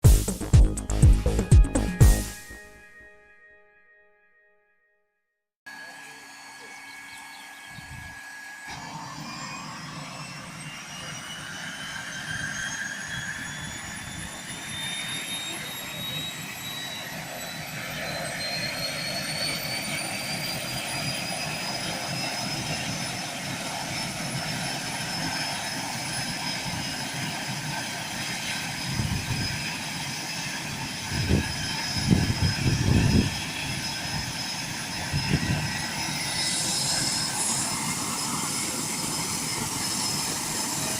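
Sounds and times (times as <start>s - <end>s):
heavy low thumps: 0.0s - 2.3s
small plane engine whining: 5.7s - 40.9s.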